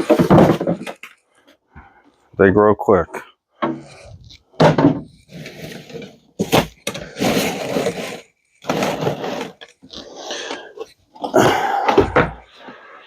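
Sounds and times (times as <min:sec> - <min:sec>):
scrap clattering: 0:03.6 - 0:09.8.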